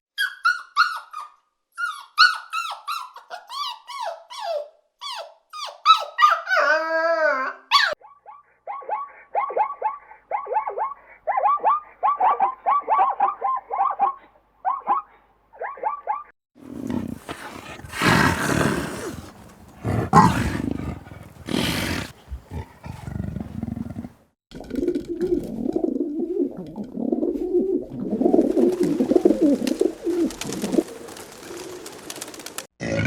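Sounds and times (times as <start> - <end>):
harsh roar-like animal calls: 16.6 - 24.2.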